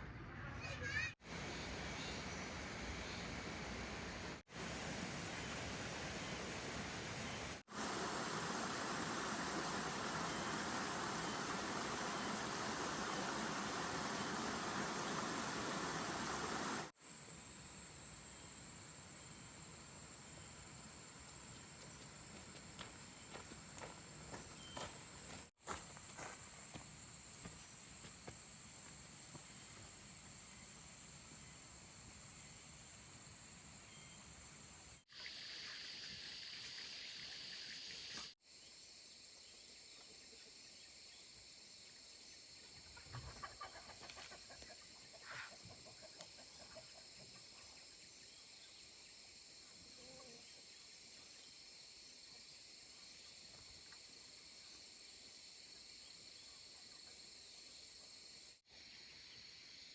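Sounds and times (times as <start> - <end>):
insects droning: 1.2 - 59.9
hen clucking: 43.0 - 45.9.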